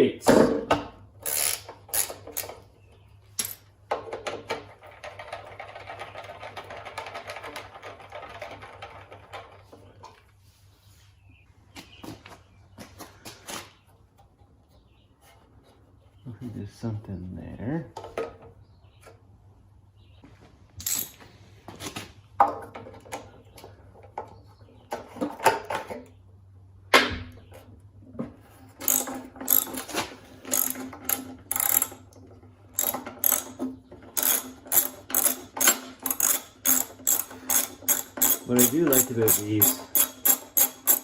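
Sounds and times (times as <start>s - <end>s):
socket ratchet clicking: 1.2s - 2.5s, 34.2s - 41.0s.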